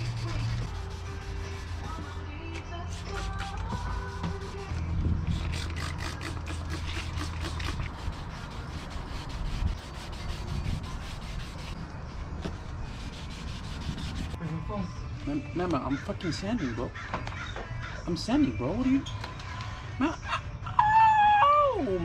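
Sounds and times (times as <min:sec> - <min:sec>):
hand sanding strokes: 0:00.0 - 0:11.8, 0:12.6 - 0:14.6.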